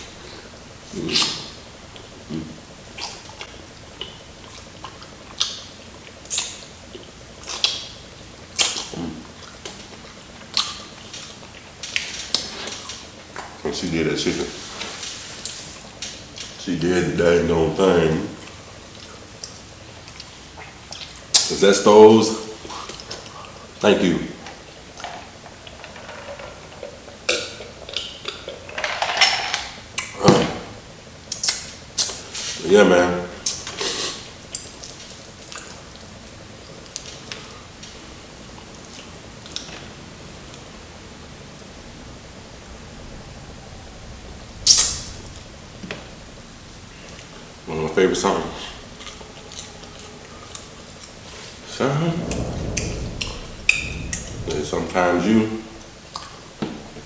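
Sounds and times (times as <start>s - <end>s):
crunchy fried chicken being chewed: 3.0s - 8.0s.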